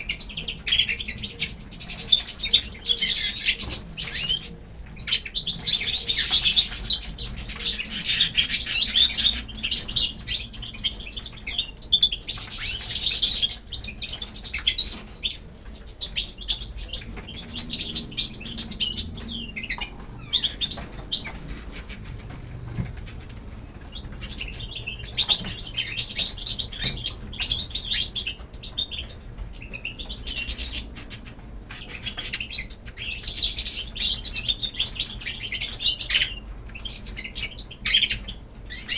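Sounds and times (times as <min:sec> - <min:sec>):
small birds chirping rapidly: 0:00.0 - 0:38.9
wings flapping: 0:00.2 - 0:10.4, 0:16.5 - 0:26.3.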